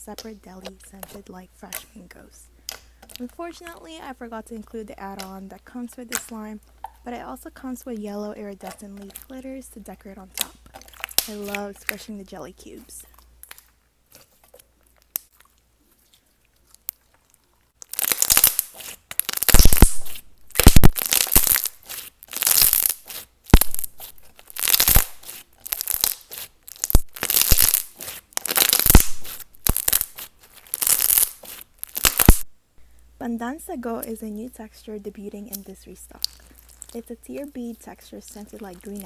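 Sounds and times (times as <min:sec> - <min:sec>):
slime squelching by hand: 0:00.0 - 0:32.5, 0:33.9 - 0:39.0.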